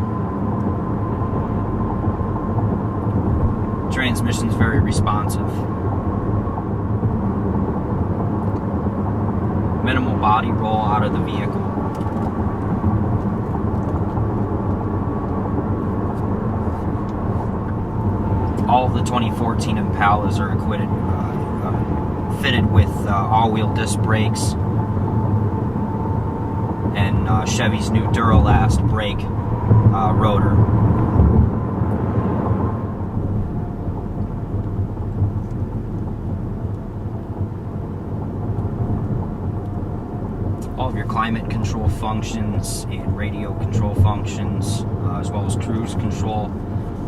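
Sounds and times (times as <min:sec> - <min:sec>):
car interior road noise: 0:00.0 - 0:47.0.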